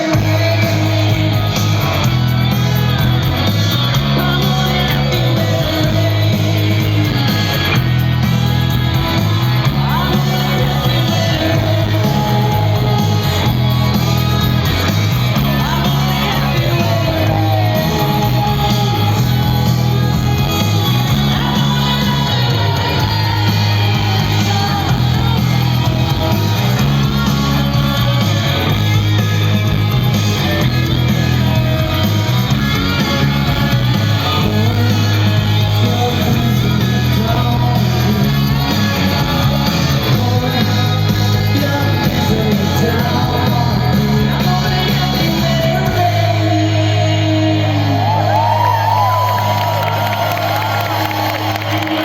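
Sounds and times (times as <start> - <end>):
live rock band playing: 0.0 - 52.0
woman singing: 15.3 - 28.5.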